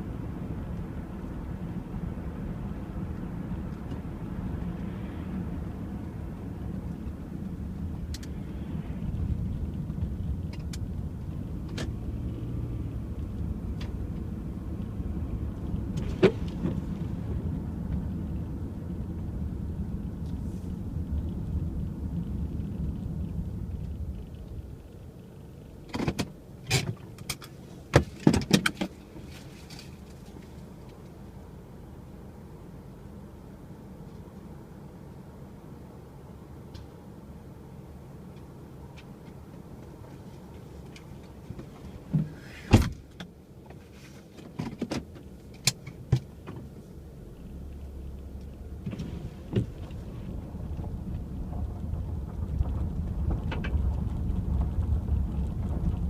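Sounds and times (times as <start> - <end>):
car engine rumble: 0.0 - 56.0
sharp clicks and knocks: 25.9 - 29.0.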